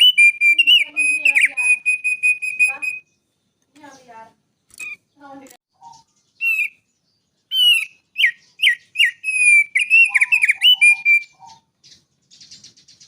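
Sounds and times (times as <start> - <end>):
songbird whistled notes: 0.0 - 3.2, 4.7 - 5.1, 5.8 - 13.0.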